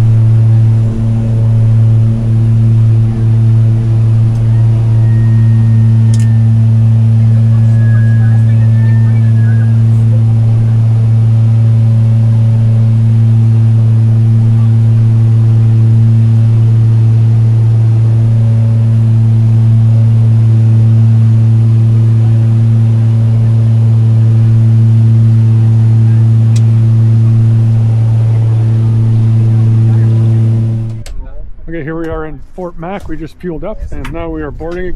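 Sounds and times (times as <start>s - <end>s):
propeller aircraft engine drone: 0.0s - 34.9s.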